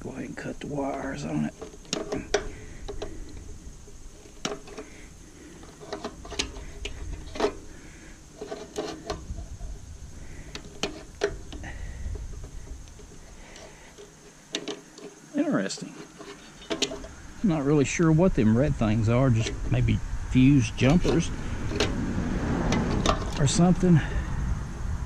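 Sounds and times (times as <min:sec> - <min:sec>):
clicks of tools and small parts: 0:01.5 - 0:03.4, 0:10.5 - 0:15.2, 0:15.8 - 0:17.1.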